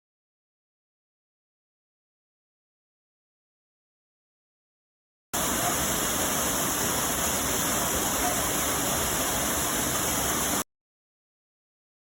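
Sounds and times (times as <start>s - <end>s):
rushing water: 5.4s - 10.6s.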